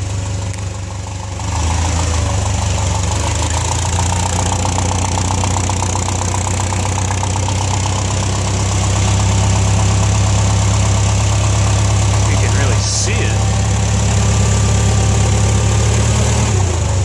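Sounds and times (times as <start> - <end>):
exhaust leak puffing: 0.0 - 17.0
forklift engine idling: 0.0 - 17.0.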